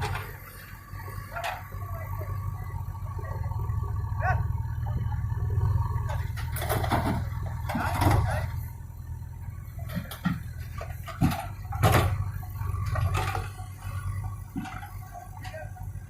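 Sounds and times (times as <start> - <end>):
heavy diesel machinery running: 0.0 - 16.0
metal knocks and clanks: 1.2 - 1.8, 6.0 - 8.6, 9.8 - 15.8.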